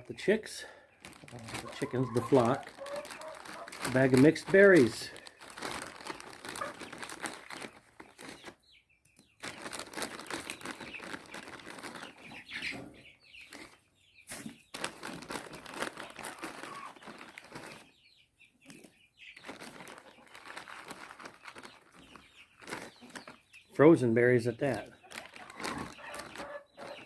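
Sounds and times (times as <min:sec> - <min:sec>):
chickens moving about: 0:00.0 - 0:08.6, 0:09.2 - 0:18.0, 0:18.6 - 0:27.0
chickens clucking: 0:00.0 - 0:27.0
plastic bag crinkling: 0:01.0 - 0:08.6, 0:09.4 - 0:12.3, 0:13.5 - 0:17.9, 0:19.4 - 0:23.4, 0:24.8 - 0:27.0.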